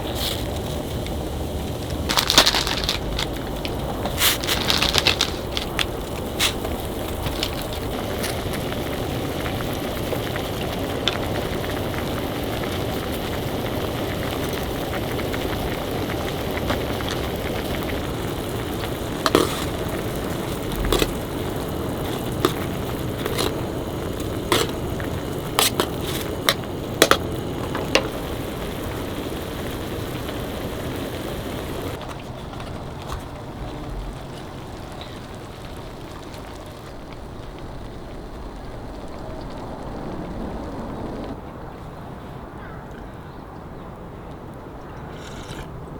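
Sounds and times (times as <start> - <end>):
food sizzling in a hot pan: 6.3 - 32.0.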